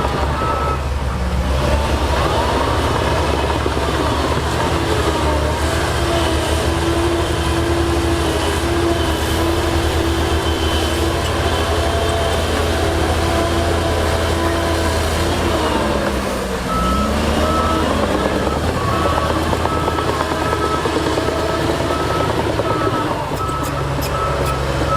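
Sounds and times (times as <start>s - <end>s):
heavy diesel engine running: 0.0s - 24.9s
reversing alarm beeping: 0.2s - 0.9s, 16.7s - 24.9s.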